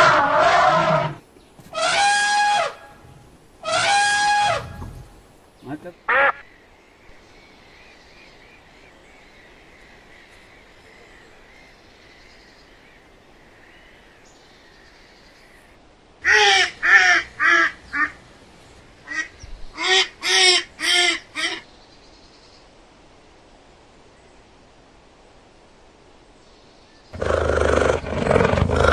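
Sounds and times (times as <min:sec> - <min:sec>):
faint bird chirping: 0:04.8 - 0:15.8.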